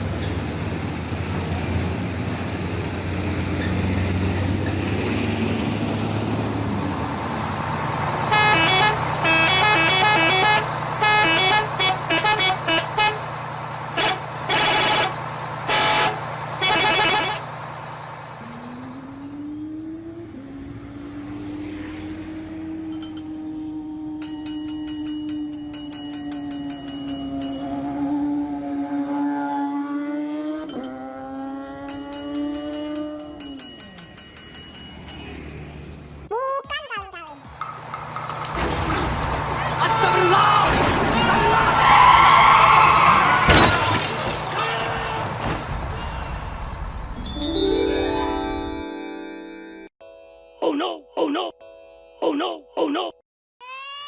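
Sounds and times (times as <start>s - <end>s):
vehicle engine running: 0.0s - 36.3s, 37.2s - 40.6s
horn honking: 8.2s - 17.6s
low rising tone: 18.4s - 33.3s.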